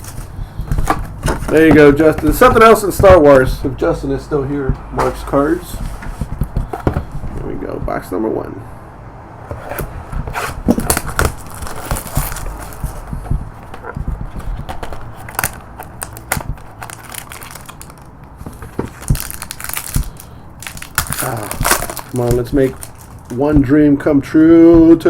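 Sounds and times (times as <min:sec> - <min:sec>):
cardboard and plastic wrapping tearing: 0:10.4 - 0:13.1, 0:14.6 - 0:23.4.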